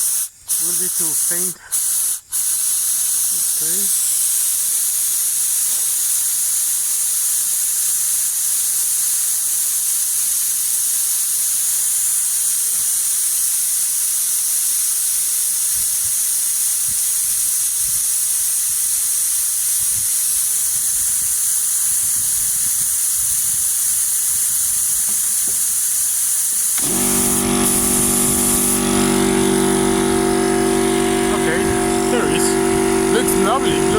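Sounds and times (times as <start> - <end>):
compressed air hissing: 0.0 - 9.0, 16.8 - 33.9.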